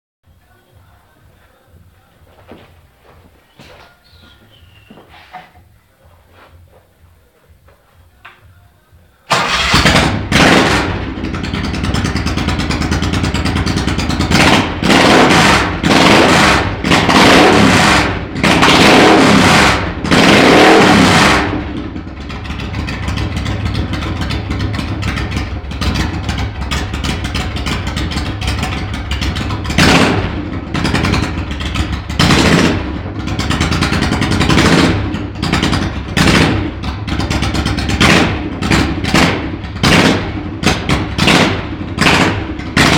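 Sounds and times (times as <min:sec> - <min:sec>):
motorcycle engine revving: 0:09.3 - 0:42.9.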